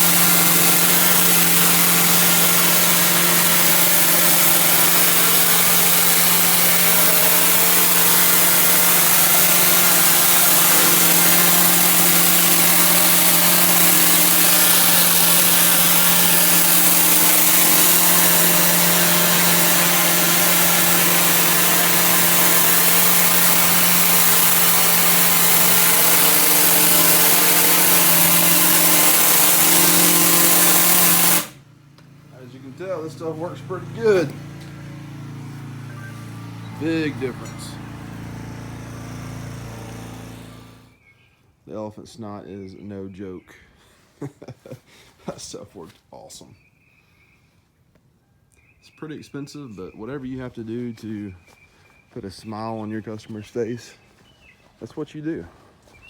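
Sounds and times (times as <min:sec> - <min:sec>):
high-pressure water spray hissing: 0:00.0 - 0:31.6, 0:32.8 - 0:40.8
pressure washer engine humming: 0:00.0 - 0:41.0.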